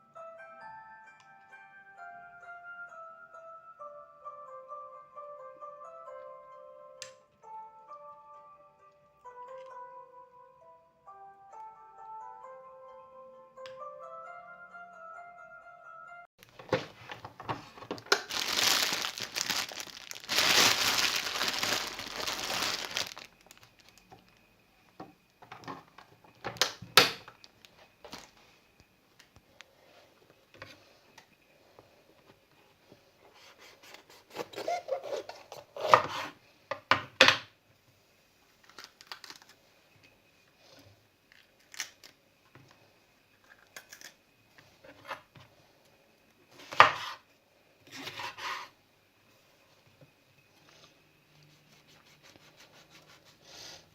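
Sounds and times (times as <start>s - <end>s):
packaging crinkling and tearing: 18.0s - 24.0s, 38.6s - 39.6s.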